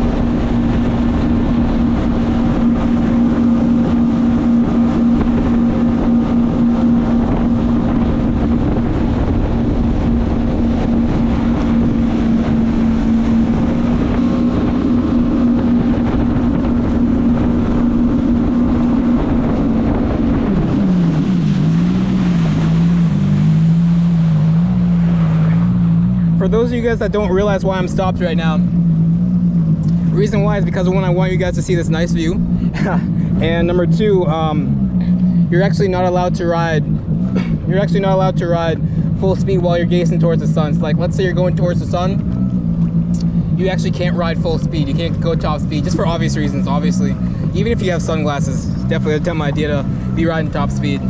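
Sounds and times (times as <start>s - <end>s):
jet ski engine running: 0.0s - 51.0s
wind buffeting microphone: 0.0s - 51.0s.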